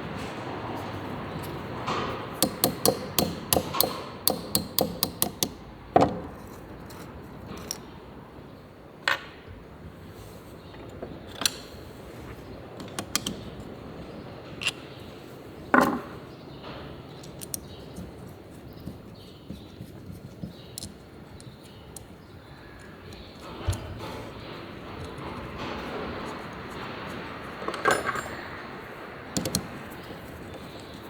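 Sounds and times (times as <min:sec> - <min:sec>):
hand tools knocking on metal: 0:01.9 - 0:06.4.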